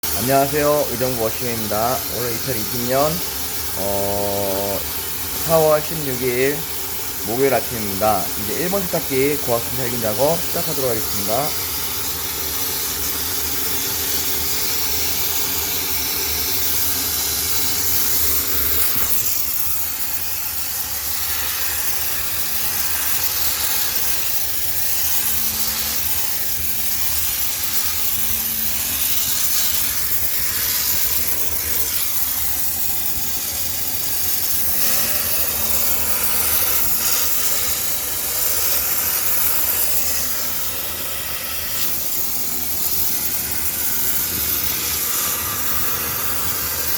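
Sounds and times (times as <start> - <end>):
loud steam hiss: 0.0 - 46.9.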